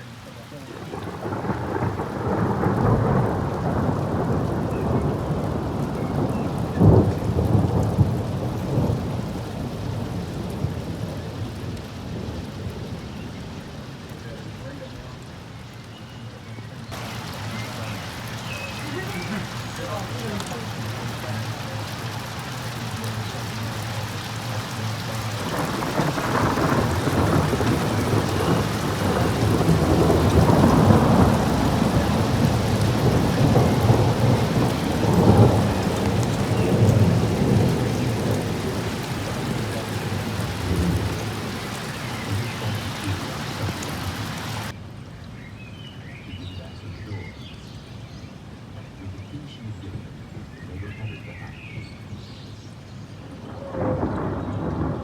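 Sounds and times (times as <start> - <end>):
rain falling: 0.0 - 45.3, 45.9 - 55.0
thunder rolling: 0.7 - 13.1, 17.0 - 44.7, 53.4 - 55.0.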